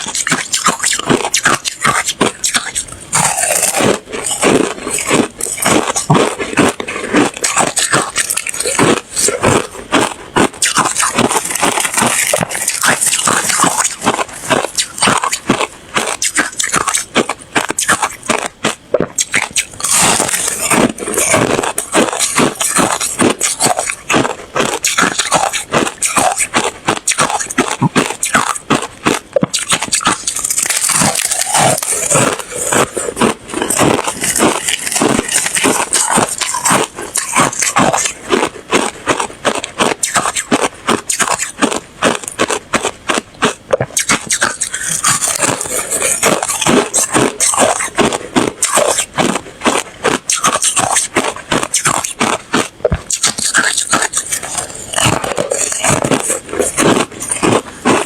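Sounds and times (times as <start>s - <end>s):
ice being chewed: 0.0s - 58.0s.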